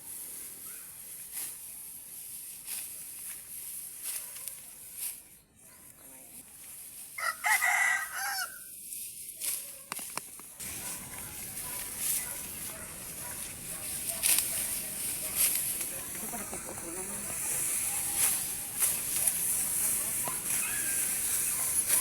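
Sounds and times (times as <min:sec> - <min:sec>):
rooster crowing: 0:07.2 - 0:08.6.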